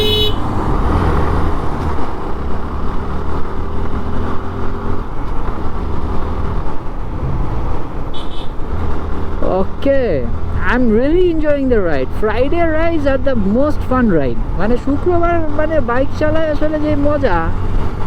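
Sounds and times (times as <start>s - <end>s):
vehicle horn: 0.0s - 0.5s, 8.1s - 8.6s
wind and road noise: 0.0s - 18.0s.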